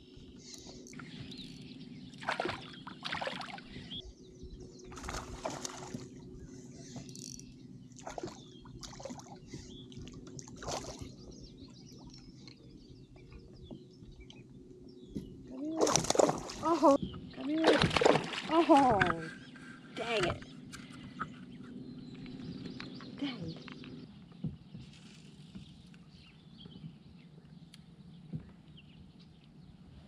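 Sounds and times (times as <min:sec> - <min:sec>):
steady low hum: 0:00.0 - 0:30.0
sharp knocks or splashes: 0:17.5 - 0:19.2.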